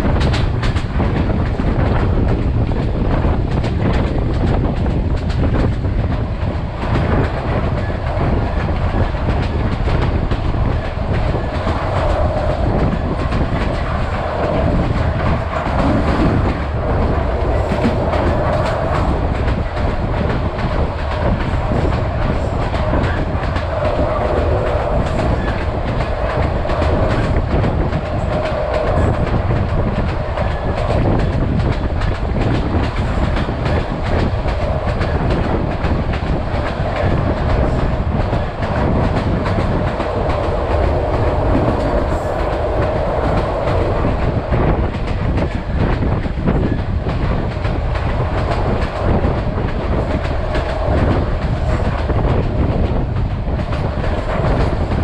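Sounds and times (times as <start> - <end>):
train wheels clattering over rails: 0.0 - 55.0
steady drone: 38.1 - 45.3.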